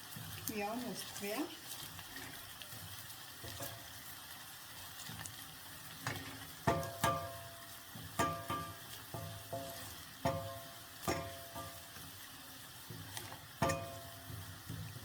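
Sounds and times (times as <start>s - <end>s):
onions sizzling in oil: 0.0s - 15.0s
spoon knocking against a pot: 6.6s - 11.8s, 13.6s - 14.5s.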